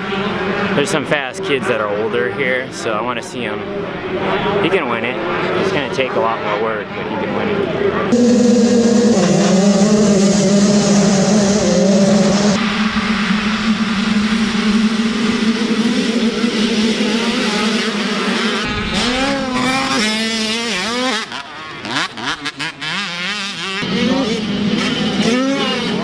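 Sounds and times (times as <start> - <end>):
dirt bike engines revving: 7.4 - 26.0.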